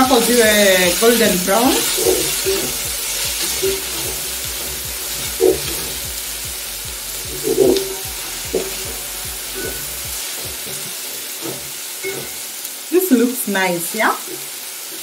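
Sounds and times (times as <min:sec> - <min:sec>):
onions sizzling in oil: 0:00.0 - 0:15.0
wooden spoon scraping pot: 0:00.2 - 0:06.0, 0:07.2 - 0:12.5.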